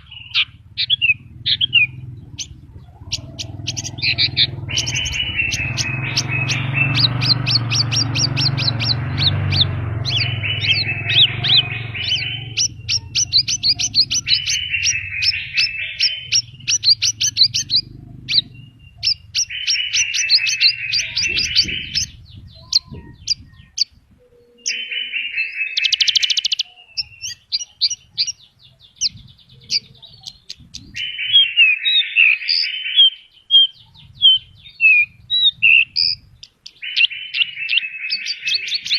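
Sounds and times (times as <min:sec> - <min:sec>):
low rumble: 0:00.0 - 0:24.3
lark singing: 0:00.0 - 0:38.9.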